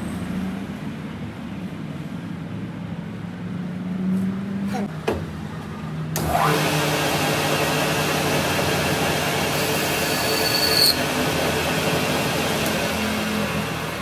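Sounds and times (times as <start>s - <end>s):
machine cutting steel: 6.2s - 14.0s
high squeal: 9.8s - 11.1s.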